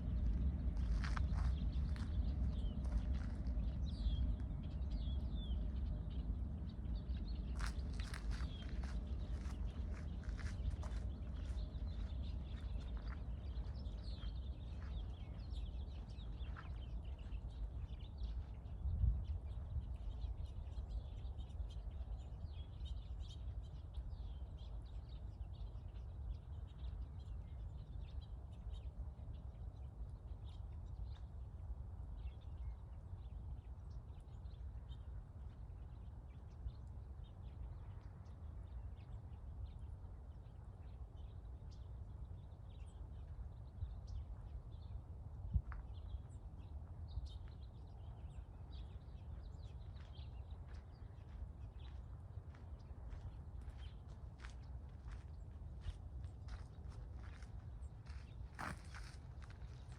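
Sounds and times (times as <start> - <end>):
small birds chirping: 0.1 - 31.4, 45.7 - 59.9.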